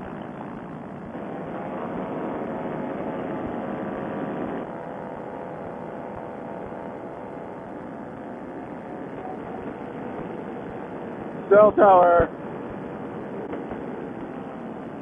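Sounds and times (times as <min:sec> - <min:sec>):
paramotor engine and propeller: 0:00.0 - 0:15.0.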